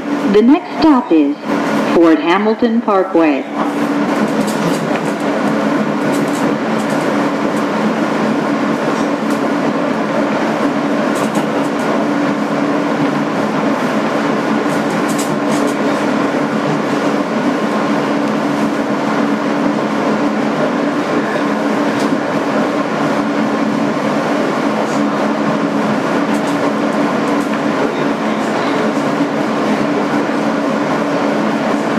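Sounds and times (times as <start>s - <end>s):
wheels rumbling on rail: 3.2s - 31.9s.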